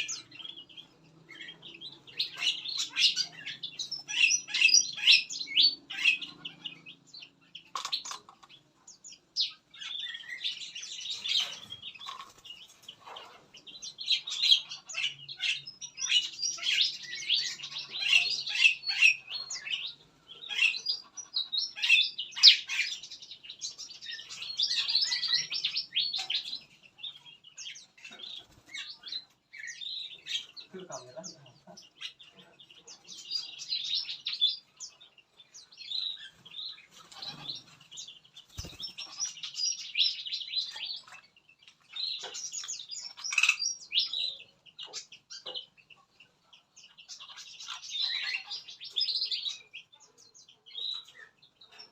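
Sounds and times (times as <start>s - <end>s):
songbirds chirping and calling: 0.0s - 51.9s.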